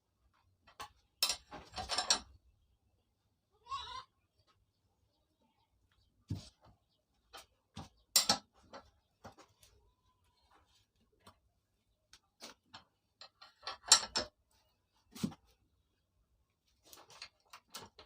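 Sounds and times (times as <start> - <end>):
metallic clicks and clanks of tools: 0.6 - 2.4, 8.1 - 8.9, 12.4 - 14.4.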